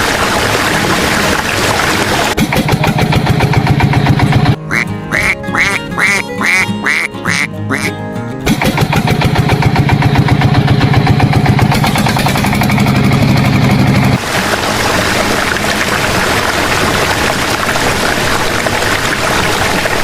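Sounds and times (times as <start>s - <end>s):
duck quacks: 4.7s - 8.0s.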